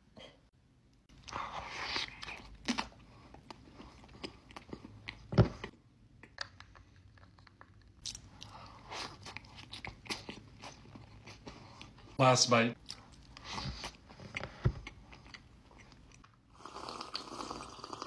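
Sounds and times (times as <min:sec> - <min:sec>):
person biting and chewing: 0:01.2 - 0:05.3, 0:08.0 - 0:12.0.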